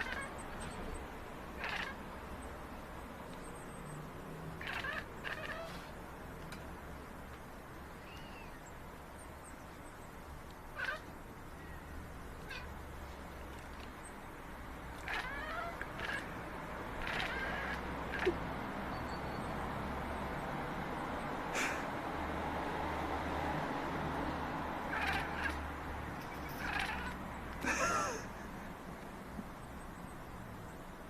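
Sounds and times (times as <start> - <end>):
cats meowing: 0.0 - 0.4, 1.6 - 2.0, 4.6 - 5.9, 10.8 - 11.1, 12.4 - 12.8, 15.0 - 16.4, 17.0 - 18.4, 24.9 - 25.6, 26.2 - 28.2.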